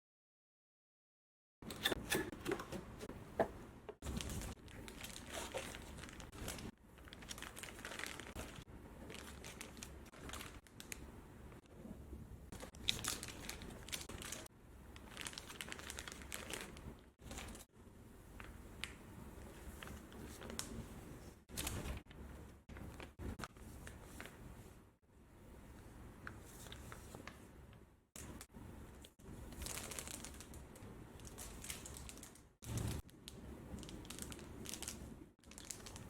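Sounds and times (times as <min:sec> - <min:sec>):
plastic packaging crinkling: 0:03.4 - 0:11.0, 0:12.6 - 0:17.7, 0:29.5 - 0:36.0.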